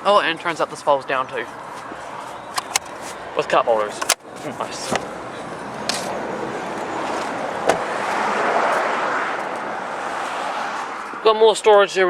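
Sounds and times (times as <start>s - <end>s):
passing vehicle rushing: 0.5s - 11.8s
sharp click: 2.5s - 3.2s, 3.9s - 4.3s.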